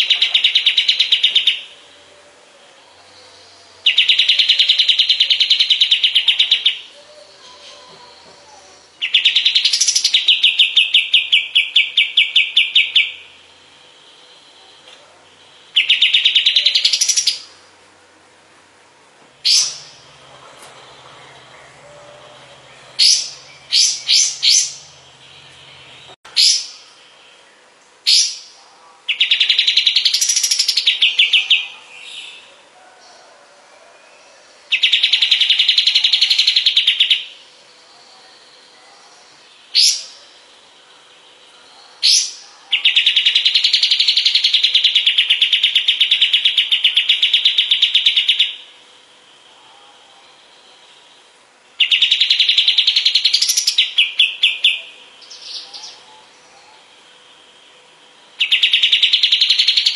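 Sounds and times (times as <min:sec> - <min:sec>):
songbird chip notes: 0:00.0 - 0:18.1, 0:19.3 - 0:32.7
songbird rattling trills: 0:19.4 - 0:26.8.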